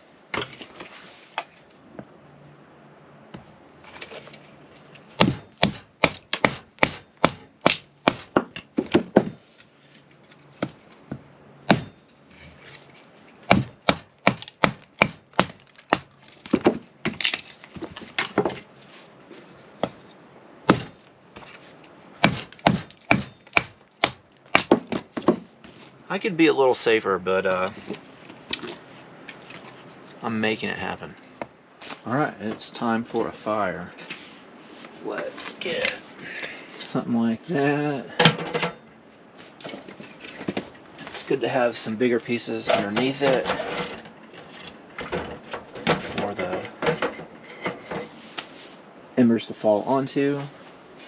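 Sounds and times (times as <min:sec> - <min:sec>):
kindling being chopped: 0:13.5 - 0:18.6, 0:22.2 - 0:25.4.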